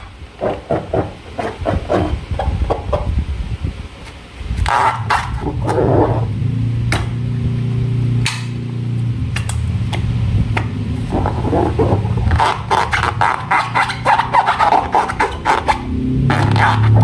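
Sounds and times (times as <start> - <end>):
low steady hum: 0.0 - 17.0
sharp snapping clicks: 8.2 - 8.6.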